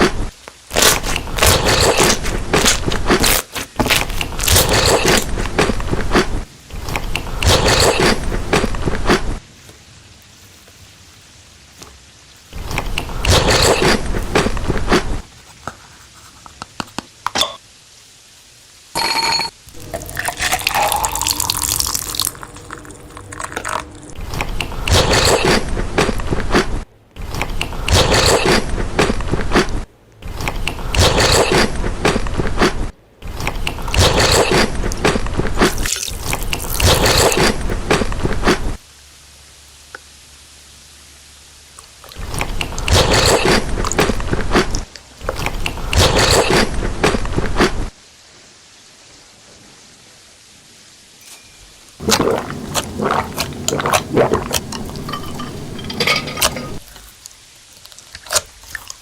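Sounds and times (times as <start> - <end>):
close eating and drinking sounds: 0.0 - 17.0, 19.1 - 38.8, 41.8 - 47.9, 52.0 - 59.0
liquid pouring into a cup: 19.7 - 24.2, 52.0 - 56.8.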